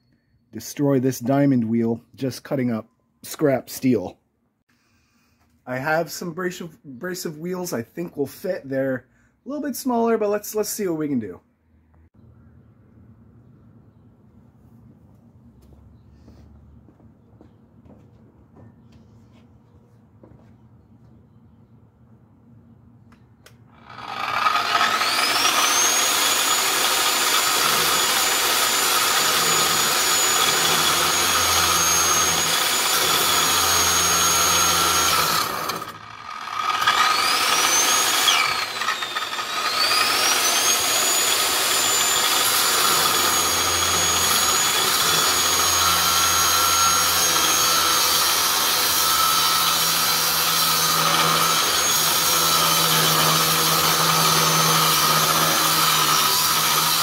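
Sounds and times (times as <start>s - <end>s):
abrasive saw cutting steel: 23.7s - 57.0s.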